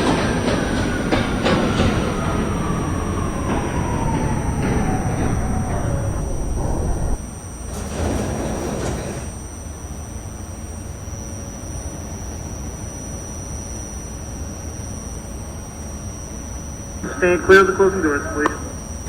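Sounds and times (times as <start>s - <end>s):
subway car humming: 0.0s - 19.0s
faint high whine: 1.5s - 7.5s, 11.0s - 19.0s.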